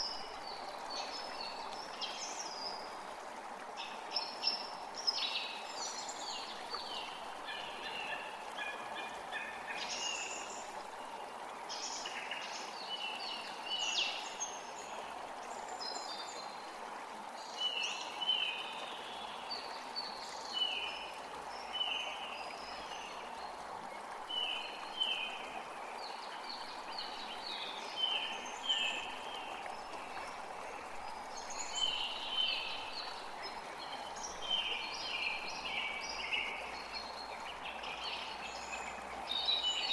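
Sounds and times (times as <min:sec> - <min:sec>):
forest creek rushing: 0:00.0 - 0:39.9.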